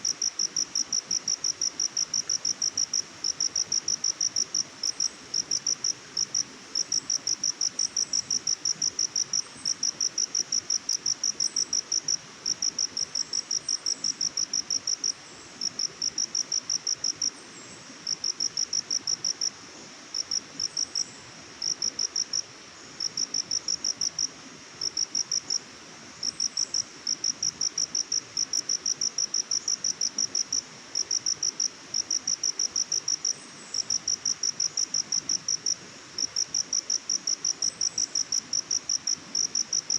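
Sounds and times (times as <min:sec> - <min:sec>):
crickets chirping: 0:00.0 - 0:17.4, 0:18.0 - 0:39.9
faint steady hiss: 0:00.0 - 0:39.9.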